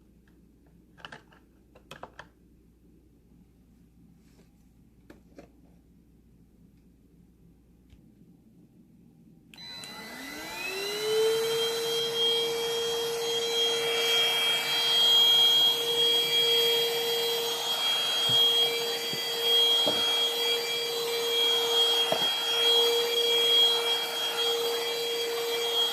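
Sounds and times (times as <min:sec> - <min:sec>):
cordless vacuum motor whine: 0:09.6 - 0:25.9.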